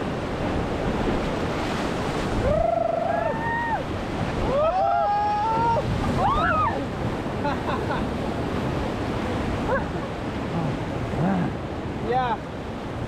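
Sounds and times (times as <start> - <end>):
wind buffeting microphone: 0.0 - 7.5
river water rushing: 0.0 - 13.0.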